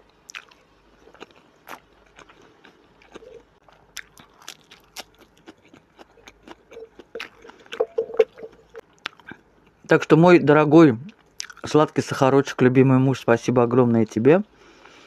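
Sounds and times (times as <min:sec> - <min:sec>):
person chewing food: 0:00.0 - 0:09.8.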